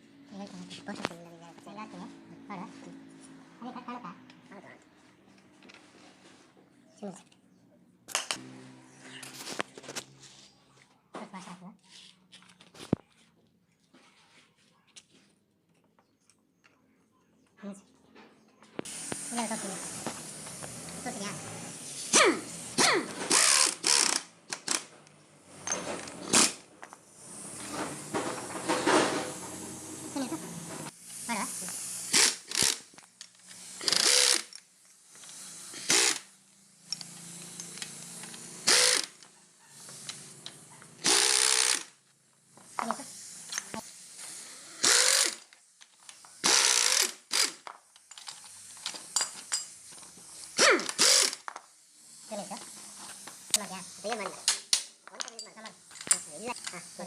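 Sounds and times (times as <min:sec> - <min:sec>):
power tool spinning up and down: 0:08.1 - 0:10.2, 0:18.8 - 0:57.0
ratchet rattling: 0:23.3 - 0:24.9, 0:31.0 - 0:41.9, 0:44.8 - 0:52.3
metallic clanks and scrapes: 0:24.9 - 0:26.6, 0:27.6 - 0:30.9.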